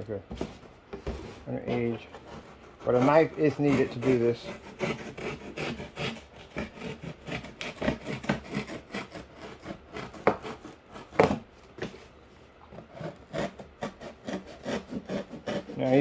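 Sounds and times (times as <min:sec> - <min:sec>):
knife cutting cardboard: 0:00.3 - 0:12.1, 0:12.7 - 0:16.0.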